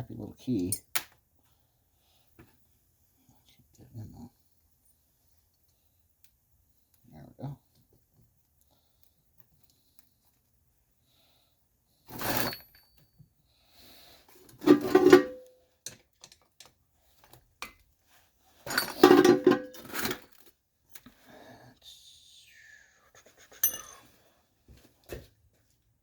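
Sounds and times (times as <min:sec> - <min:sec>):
metal engine parts clattering: 0:14.6 - 0:15.4, 0:18.7 - 0:20.3.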